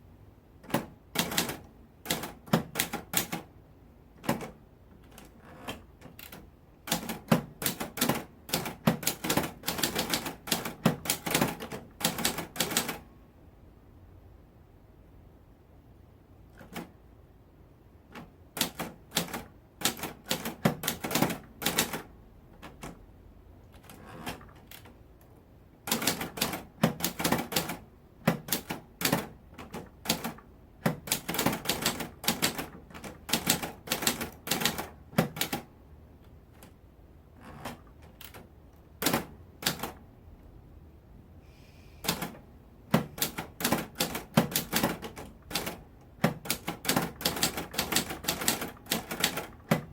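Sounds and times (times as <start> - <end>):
typewriter keys clacking: 25.9 - 35.7, 42.0 - 49.9.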